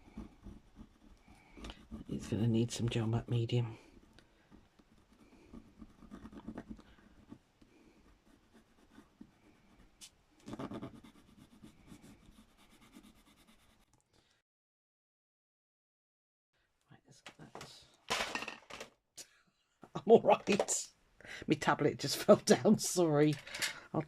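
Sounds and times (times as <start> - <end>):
scratching and brushing on paper: 4.8 - 13.9.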